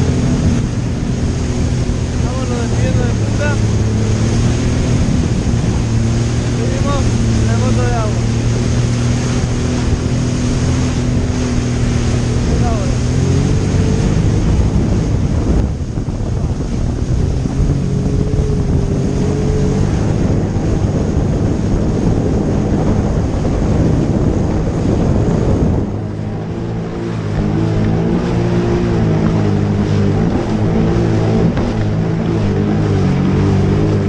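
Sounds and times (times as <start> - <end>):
jet ski engine running: 0.0 - 34.0
rushing water: 0.0 - 34.0
wind: 0.0 - 34.0.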